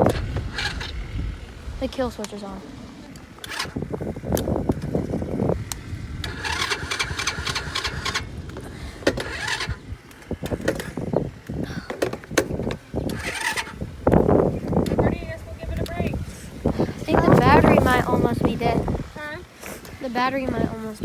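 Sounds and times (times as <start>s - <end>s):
electric starter cranking: 0.0s - 15.0s.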